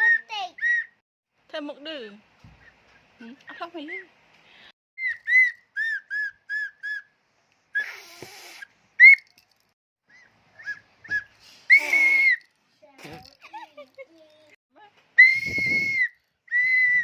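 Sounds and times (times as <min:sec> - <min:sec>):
child blowing whistle toots: 0:00.0 - 0:01.0, 0:05.0 - 0:07.0, 0:07.8 - 0:09.3, 0:10.6 - 0:12.5, 0:15.2 - 0:17.0.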